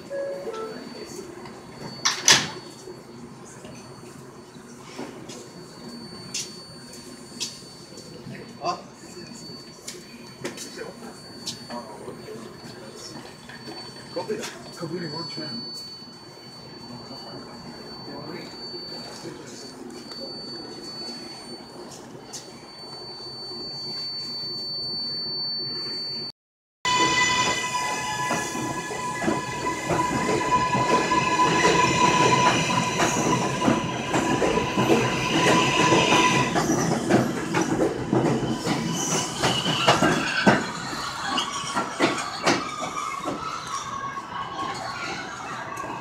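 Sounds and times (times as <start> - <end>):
high-pitched steady tones: 26.9 - 40.0
train passing: 26.9 - 46.0.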